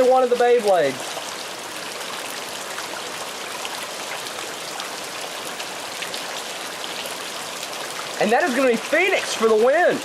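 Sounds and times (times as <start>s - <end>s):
heavy rain falling: 0.0s - 10.0s.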